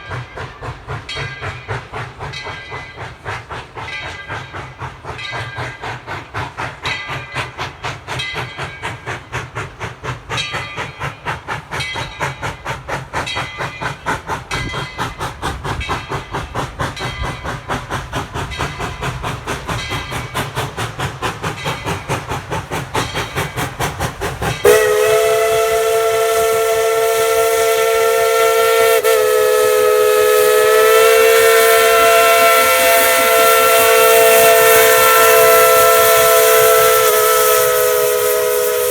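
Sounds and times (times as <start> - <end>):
steam locomotive chuffing: 0.0 - 38.9
steam whistle blast: 24.6 - 38.9.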